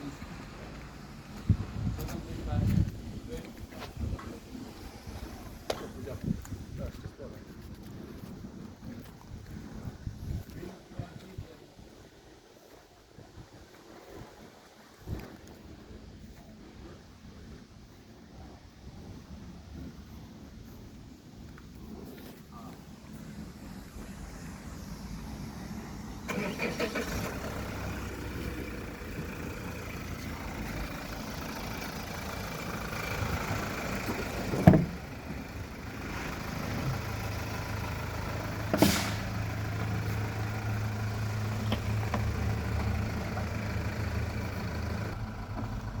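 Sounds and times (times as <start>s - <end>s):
van diesel engine idling: 25.8s - 46.0s.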